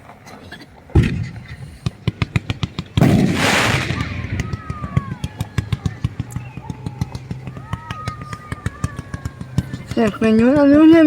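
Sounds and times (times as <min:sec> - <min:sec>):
hissing firework blast: 0:01.0 - 0:05.4
firecracker cracks: 0:01.0 - 0:06.3
firework bang: 0:02.1 - 0:06.2
faint firework whistles: 0:03.0 - 0:06.8.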